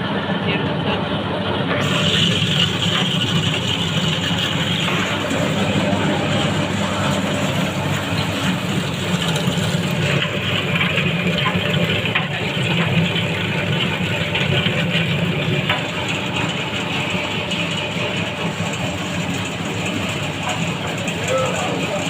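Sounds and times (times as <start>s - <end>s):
wet grinder humming: 1.7s - 22.0s.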